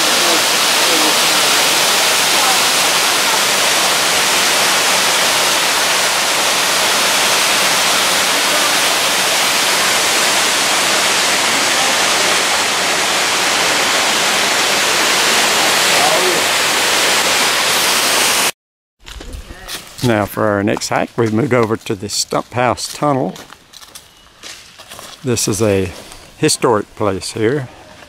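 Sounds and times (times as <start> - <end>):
waterfall rushing: 0.0 - 18.5.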